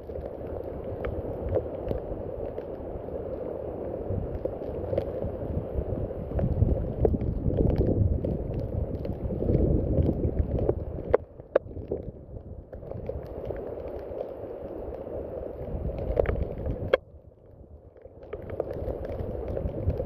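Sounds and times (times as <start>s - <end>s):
rain falling: 0.0s - 20.0s
raindrop taps: 6.2s - 14.8s, 15.6s - 17.0s, 18.0s - 20.0s.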